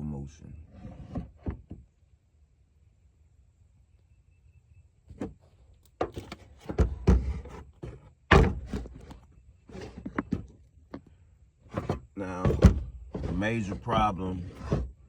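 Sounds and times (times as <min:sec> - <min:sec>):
camera knocks and thumps: 0:06.0 - 0:09.2, 0:11.8 - 0:14.9.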